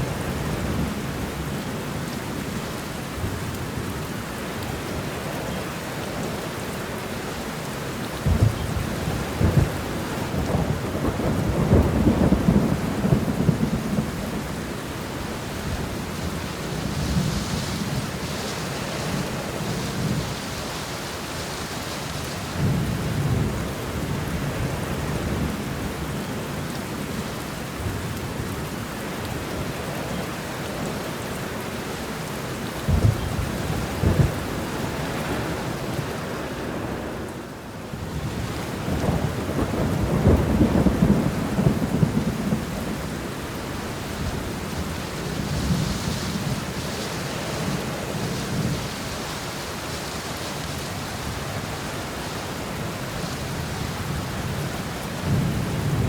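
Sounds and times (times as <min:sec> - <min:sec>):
steady rain: 0:00.0 - 0:56.0
low thunder rumbles: 0:08.2 - 0:20.4, 0:32.8 - 0:49.1, 0:51.2 - 0:56.0.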